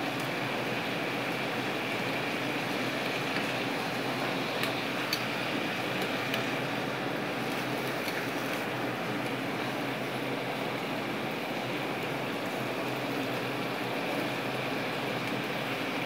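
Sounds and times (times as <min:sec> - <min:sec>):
fish sizzling in a frying pan: 0:00.0 - 0:16.0
metal tongs clicking on pan: 0:04.6 - 0:05.3.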